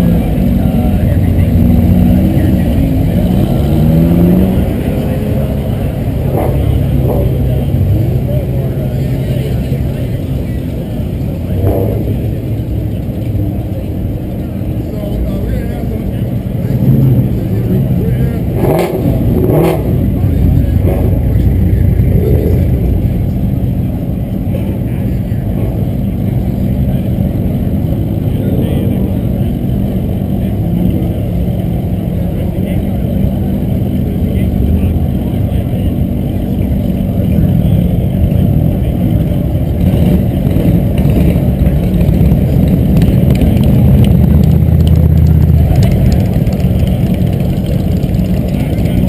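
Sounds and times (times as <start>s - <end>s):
car engine running: 0.0s - 49.0s
low drone: 15.8s - 33.4s.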